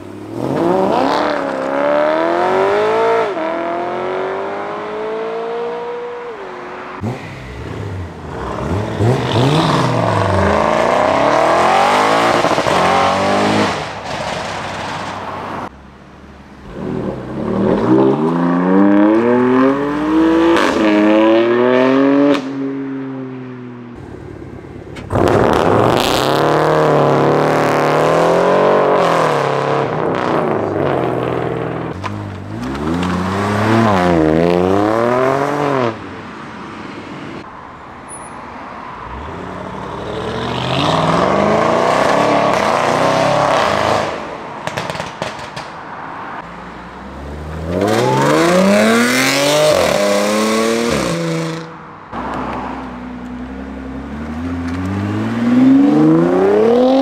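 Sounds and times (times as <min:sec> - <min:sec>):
car engines accelerating hard: 0:00.0 - 0:15.7, 0:39.1 - 0:45.4, 0:46.2 - 0:57.0.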